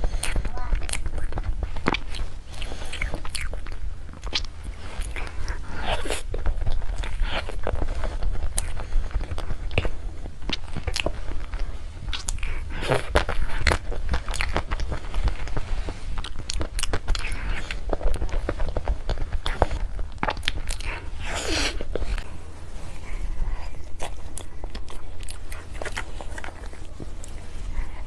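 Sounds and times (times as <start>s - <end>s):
biting and chewing clicks: 0.0s - 21.2s.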